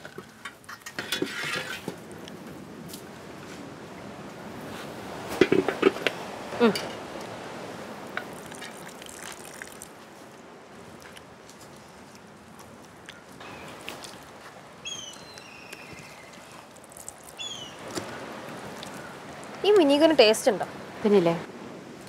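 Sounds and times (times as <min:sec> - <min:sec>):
bird calling falling notes: 0:14.8 - 0:16.6, 0:17.3 - 0:18.2.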